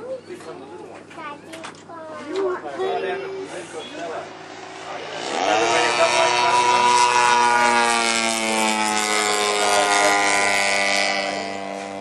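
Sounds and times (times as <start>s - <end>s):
model plane engine droning: 2.8s - 12.0s.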